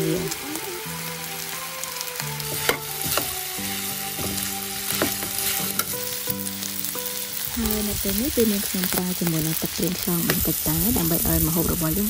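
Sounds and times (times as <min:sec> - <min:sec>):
chicken sizzling in a wok: 0:00.0 - 0:12.0
metal spatula scraping pan: 0:02.5 - 0:06.1.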